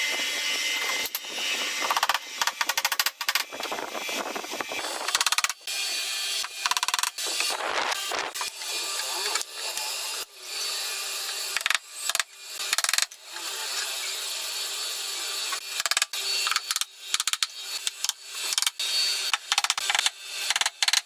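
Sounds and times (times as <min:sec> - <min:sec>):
handheld power tool running: 0:00.0 - 0:21.0.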